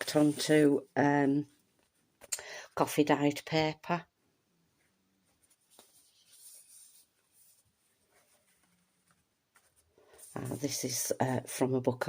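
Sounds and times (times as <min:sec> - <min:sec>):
paper pages rustling: 0:00.0 - 0:00.8, 0:05.3 - 0:11.0.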